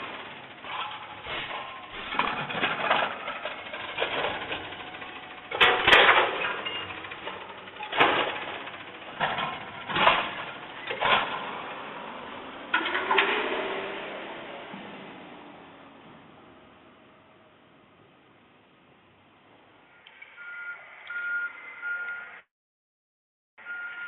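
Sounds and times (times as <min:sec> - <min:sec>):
garbage truck bangs and clanks: 0:00.0 - 0:15.2
truck engine running: 0:00.0 - 0:17.4.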